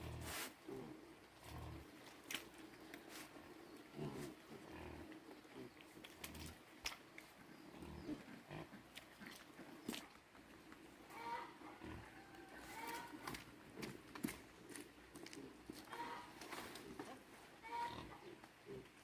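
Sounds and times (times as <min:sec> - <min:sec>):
pigs grunting: 0:00.0 - 0:02.1, 0:03.8 - 0:06.6, 0:07.4 - 0:10.1, 0:11.0 - 0:14.3, 0:15.2 - 0:19.0.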